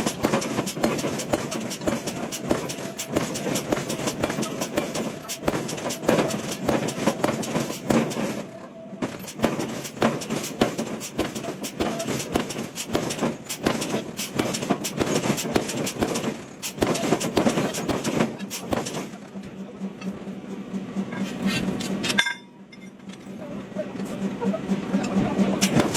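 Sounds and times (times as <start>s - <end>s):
metal knocks and clanks: 21.0s - 23.4s.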